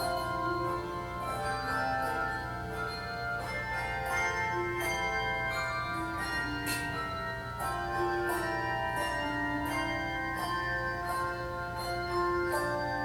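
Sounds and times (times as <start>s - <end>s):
handbell choir playing: 0.0s - 13.0s.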